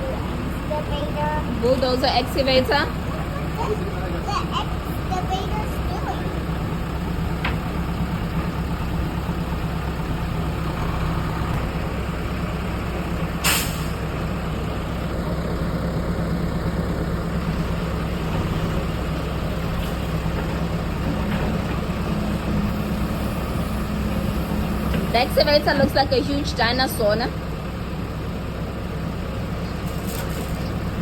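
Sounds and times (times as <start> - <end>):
excavator diesel engine running: 0.0 - 31.0
sharp hiss burst: 13.4 - 14.0.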